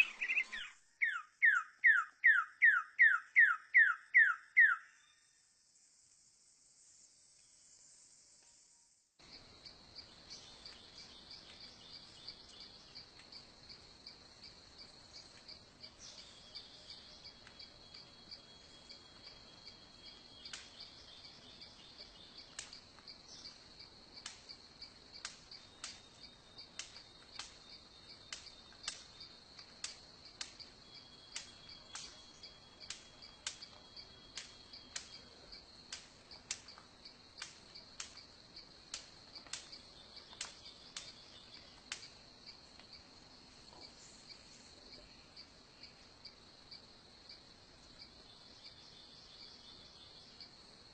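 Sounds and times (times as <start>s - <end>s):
bird calls: 0.0s - 5.1s
insect chirring: 0.0s - 50.9s.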